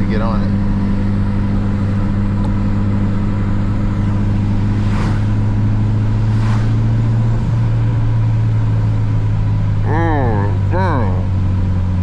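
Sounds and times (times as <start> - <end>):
car engine droning steadily: 0.0 - 12.0
whooshes of noise: 4.5 - 7.6.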